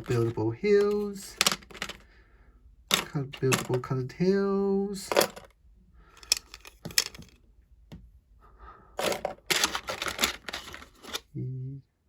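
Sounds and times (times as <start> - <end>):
plastic pieces clicking: 0.0 - 2.0, 2.9 - 3.9, 6.1 - 7.4, 9.0 - 11.2.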